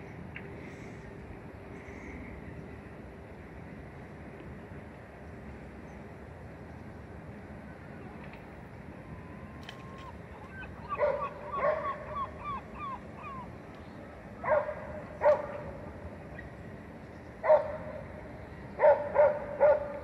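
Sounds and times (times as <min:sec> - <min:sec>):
dog barking: 0:11.0 - 0:12.0, 0:14.4 - 0:15.6, 0:17.4 - 0:17.8, 0:18.8 - 0:20.0.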